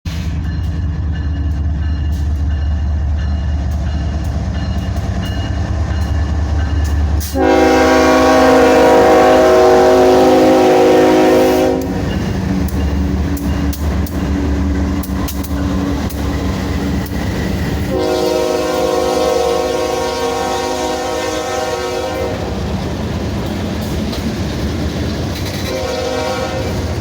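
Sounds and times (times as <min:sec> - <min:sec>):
diesel locomotives rumbling: 0:00.0 - 0:27.0
locomotive air horn blast: 0:07.3 - 0:12.1, 0:17.9 - 0:22.6, 0:25.7 - 0:26.9.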